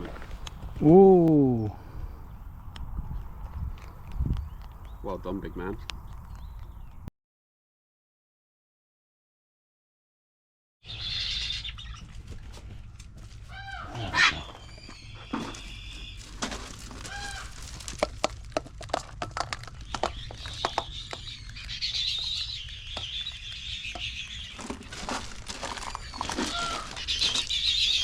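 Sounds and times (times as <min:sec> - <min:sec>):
bird calling: 0:10.8 - 0:12.2, 0:12.8 - 0:17.6, 0:19.7 - 0:28.0.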